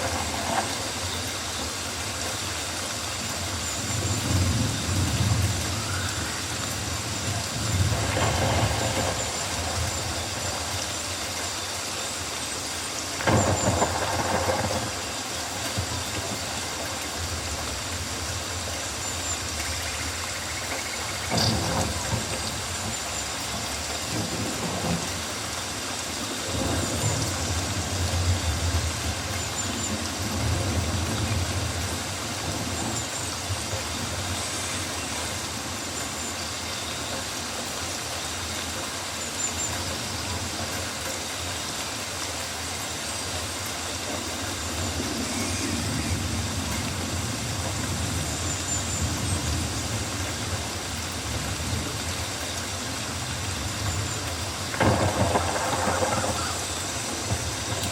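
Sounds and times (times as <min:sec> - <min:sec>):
rain hiss: 0:00.0 - 0:57.9.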